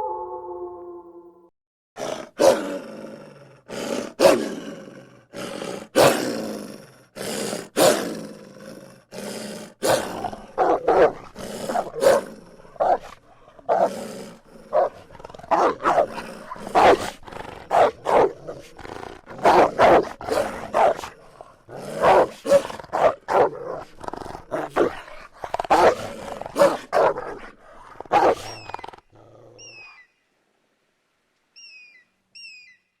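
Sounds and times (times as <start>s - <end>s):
canid barking and growling: 2.0s - 29.9s.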